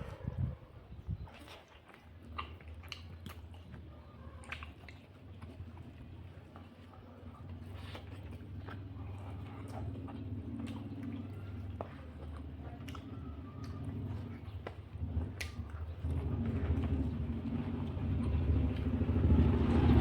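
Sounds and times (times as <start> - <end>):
mouth clicks and smacks: 0.3 - 3.8, 7.6 - 17.0
person chewing and eating: 1.2 - 20.0.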